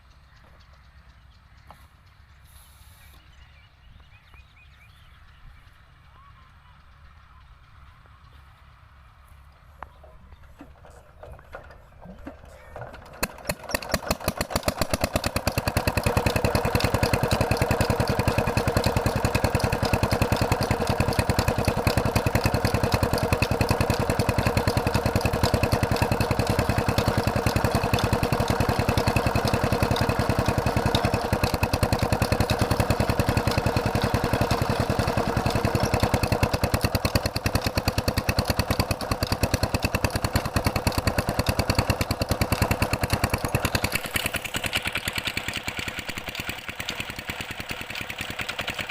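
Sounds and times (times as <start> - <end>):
diesel water pump engine running: 5.7 - 48.9.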